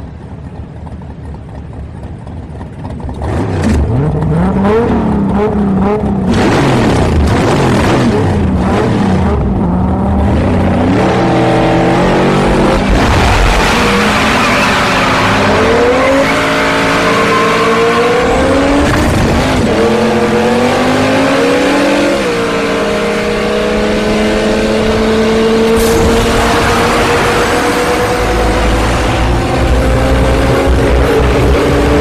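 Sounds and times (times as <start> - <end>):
car engines accelerating hard: 0.0 - 32.0
tire squeal: 13.2 - 19.0.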